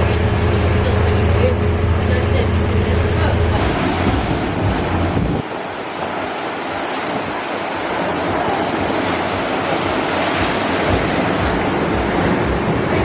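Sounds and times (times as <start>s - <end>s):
wind and sea water rushing: 0.0s - 13.0s
wind buffeting microphone: 0.0s - 13.0s.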